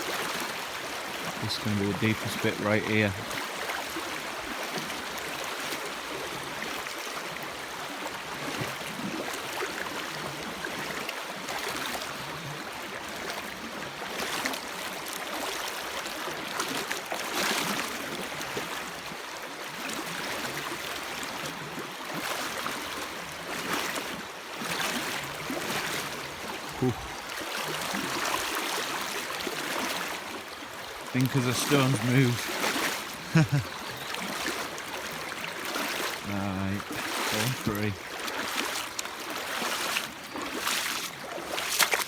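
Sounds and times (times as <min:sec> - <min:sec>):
person wading through water: 0:00.0 - 0:42.0
river rushing over stones: 0:22.1 - 0:42.0.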